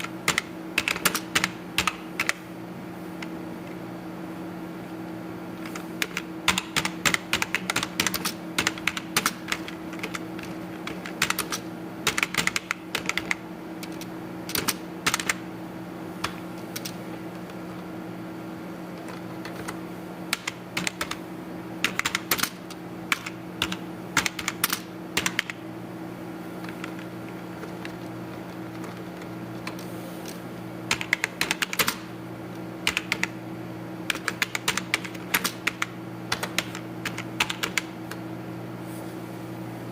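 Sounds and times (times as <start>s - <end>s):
computer keyboard typing: 0.0s - 2.4s, 5.7s - 15.4s, 16.2s - 17.9s, 18.8s - 21.2s, 21.8s - 25.6s, 26.6s - 29.9s, 30.9s - 32.1s, 32.8s - 33.4s, 34.1s - 38.0s
steady low hum: 0.0s - 39.9s.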